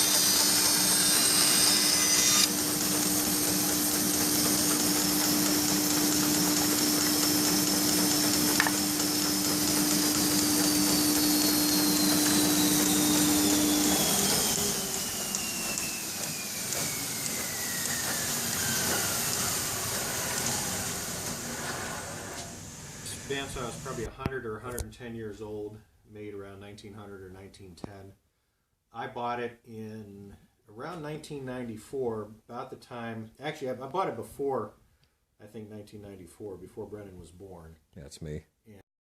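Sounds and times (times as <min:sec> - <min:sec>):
bandsaw running hum: 0:00.0 - 0:24.1
saw wheels whining down: 0:00.0 - 0:24.1.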